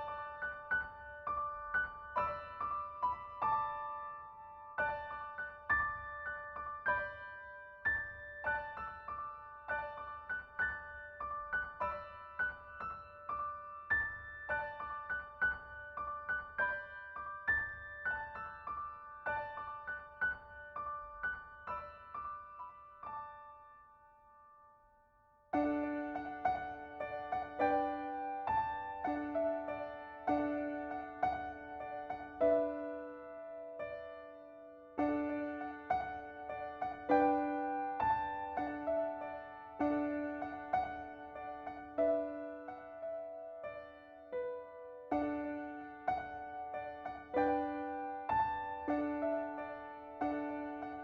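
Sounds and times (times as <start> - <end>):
soft piano music: 0.0 - 51.0.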